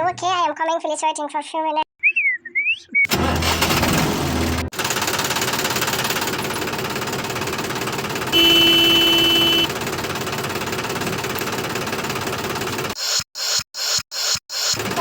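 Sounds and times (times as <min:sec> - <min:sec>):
tractor engine knocking: 0:04.7 - 0:13.0
horn sounding: 0:08.3 - 0:09.7.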